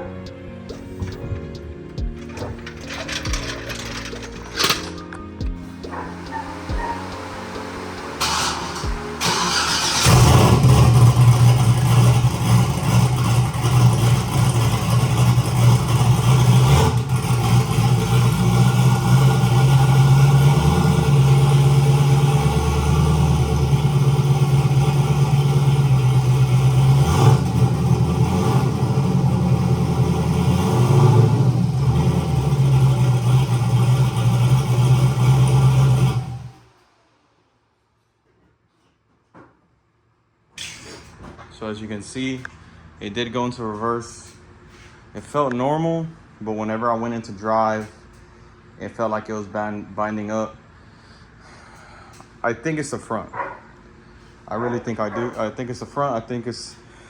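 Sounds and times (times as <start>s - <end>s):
car engine running at low revs: 5.4s - 36.7s.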